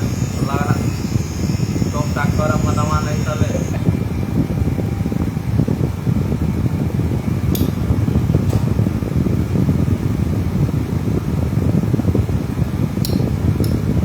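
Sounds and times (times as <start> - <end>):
low-pitched machine noise: 0.0 - 8.4.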